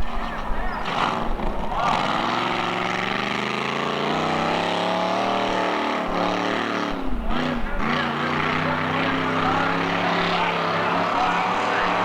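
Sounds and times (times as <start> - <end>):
truck engine revving: 0.7 - 12.0.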